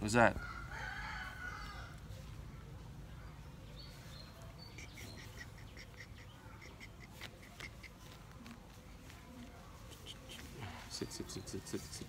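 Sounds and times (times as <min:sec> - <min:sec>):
bird chirping: 0:03.2 - 0:08.2
faint bird call: 0:04.3 - 0:08.2.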